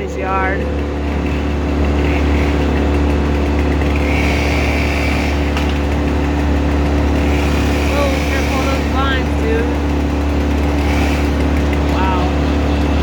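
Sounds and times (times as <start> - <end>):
heavy engine running: 0.0 - 13.0.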